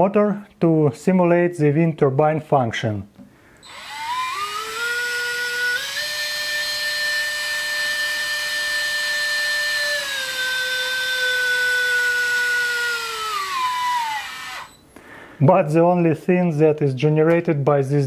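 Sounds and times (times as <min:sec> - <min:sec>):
small electric motor whine: 0:03.6 - 0:14.8.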